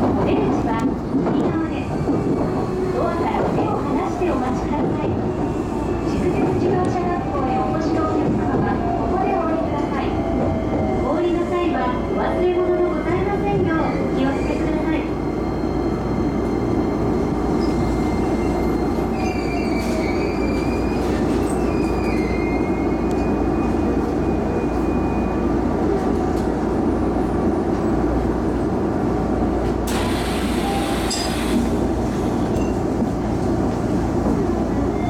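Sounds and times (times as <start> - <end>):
train interior rumbling hum: 0.0 - 35.0
high squeal: 17.6 - 23.0.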